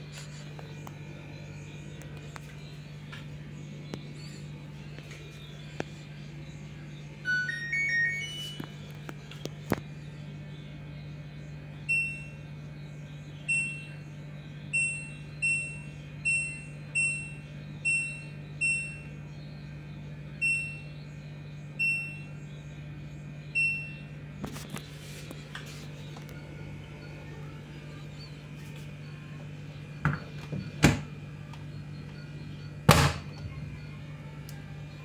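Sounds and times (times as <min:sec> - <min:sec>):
steady low hum: 0:00.0 - 0:35.0
washing machine panel beeps: 0:07.2 - 0:09.3, 0:11.8 - 0:12.5, 0:13.4 - 0:14.0, 0:14.7 - 0:19.2, 0:20.4 - 0:21.0, 0:21.7 - 0:22.4, 0:23.5 - 0:24.2, 0:25.9 - 0:35.0.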